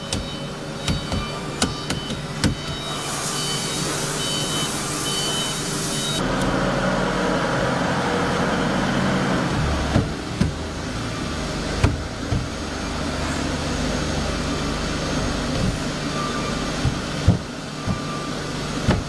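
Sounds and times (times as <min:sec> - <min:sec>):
sharp knocks: 0:00.0 - 0:02.8
woodworking machinery humming: 0:00.0 - 0:19.0.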